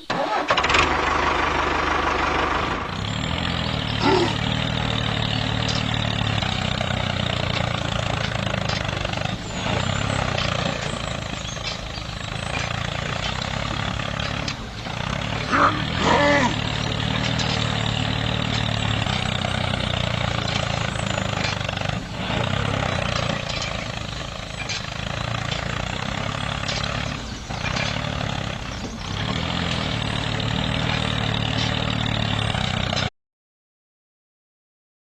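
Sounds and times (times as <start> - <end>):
small motor running: 0.8 - 33.0.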